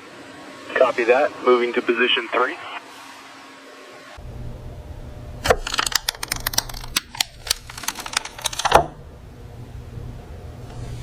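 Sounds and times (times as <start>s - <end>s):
steady low hum: 0.0s - 11.0s
sharp mechanical clicks: 5.4s - 8.9s.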